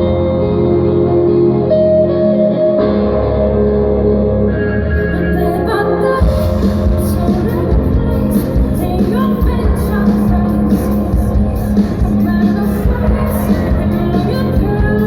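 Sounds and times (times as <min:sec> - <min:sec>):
guitar: 0:00.0 - 0:15.0
rock band playing live: 0:00.0 - 0:15.0
person singing: 0:04.8 - 0:15.0
drums: 0:04.9 - 0:15.0.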